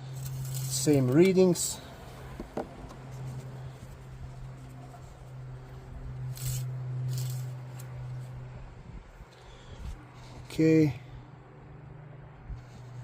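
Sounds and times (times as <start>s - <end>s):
steady low hum: 0.0s - 13.0s
cloth rubbing a dipstick: 0.3s - 8.3s.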